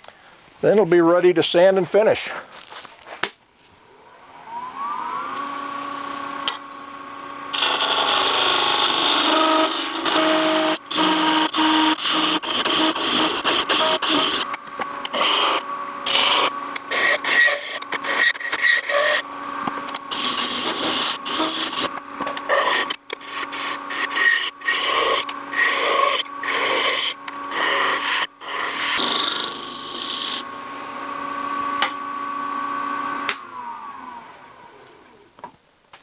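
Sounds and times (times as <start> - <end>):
wood lathe humming: 3.8 - 35.3
turning tool scraping wood: 7.5 - 31.0.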